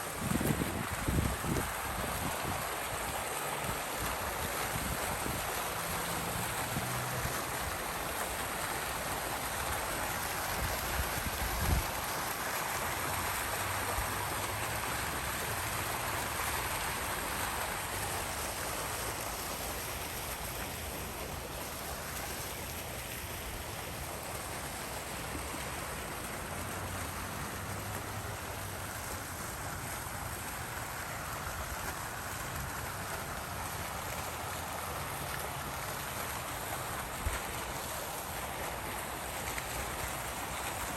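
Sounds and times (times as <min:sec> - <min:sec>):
water fountain splashing: 0:00.0 - 0:40.9.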